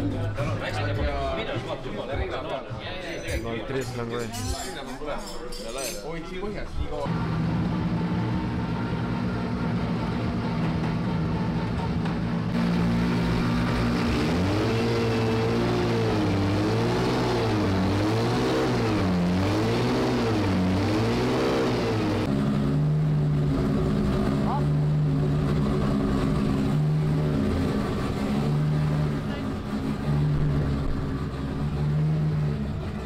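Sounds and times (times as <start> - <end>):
car engine revving: 7.1 - 33.0.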